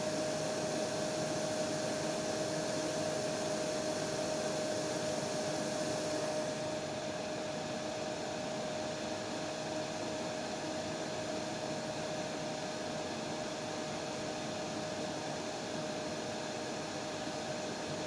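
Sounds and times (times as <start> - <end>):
hair dryer running: 0.0 - 9.2.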